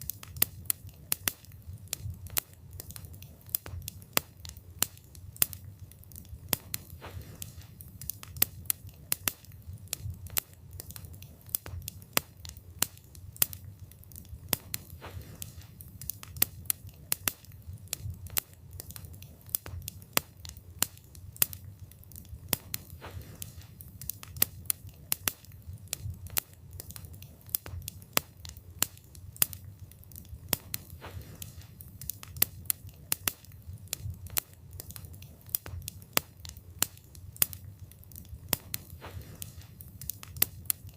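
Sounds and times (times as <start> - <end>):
low rumble of flames: 0.0 - 40.9
wood crackling and popping: 0.0 - 40.9.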